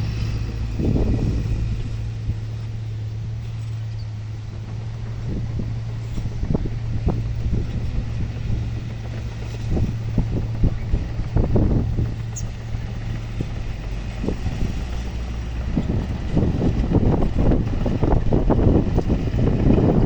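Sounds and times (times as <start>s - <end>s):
heavy diesel engine running: 0.0s - 20.0s
wind buffeting microphone: 0.0s - 20.0s.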